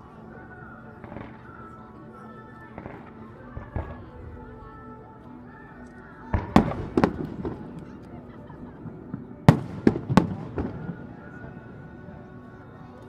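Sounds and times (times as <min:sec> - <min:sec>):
fireworks bursting: 0:06.3 - 0:07.9, 0:08.8 - 0:11.4.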